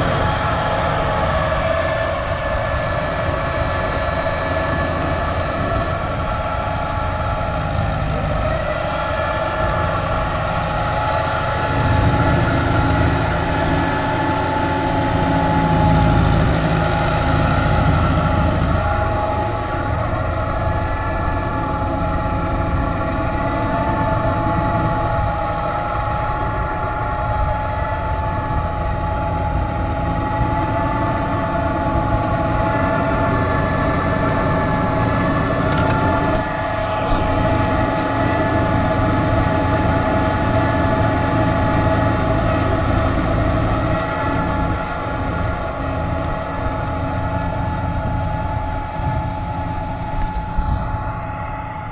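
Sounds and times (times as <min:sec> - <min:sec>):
tractor engine running under load: 0:00.0 - 0:51.9.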